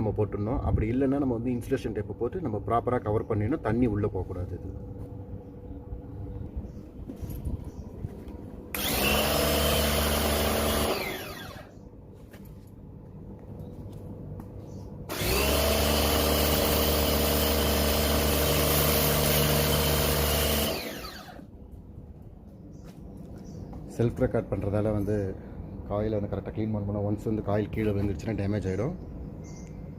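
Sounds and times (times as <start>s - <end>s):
electric power tool running: 8.7s - 11.7s, 15.1s - 21.5s.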